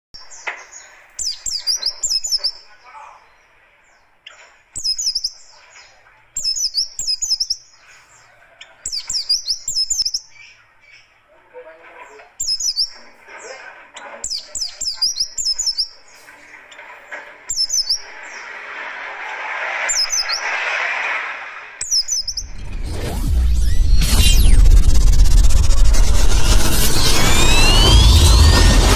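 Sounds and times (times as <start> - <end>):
bird singing high chirping bursts: 0.2 - 2.7, 4.2 - 8.2, 8.8 - 10.6, 12.4 - 13.0, 14.2 - 16.2, 17.5 - 18.6, 19.9 - 20.5, 21.8 - 22.6
background hiss: 14.3 - 22.5.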